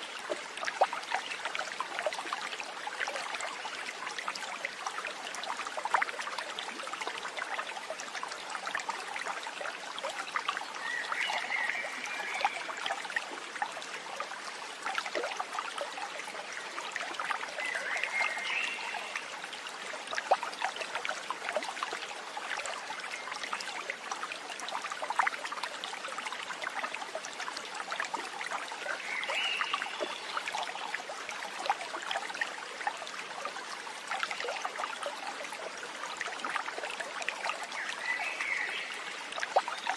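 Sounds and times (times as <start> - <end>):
small stream trickling: 0.0 - 39.9.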